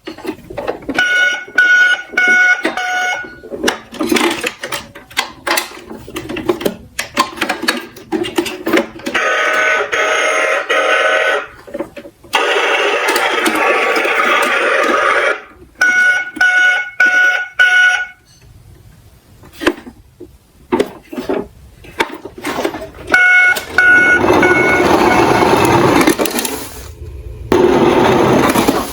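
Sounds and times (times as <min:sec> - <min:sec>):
toy trucks knocking as they tumble: 0:00.0 - 0:18.1
plastic toy trucks rolling and clattering: 0:00.0 - 0:28.9
electronic beeps: 0:01.0 - 0:03.4, 0:23.2 - 0:25.8.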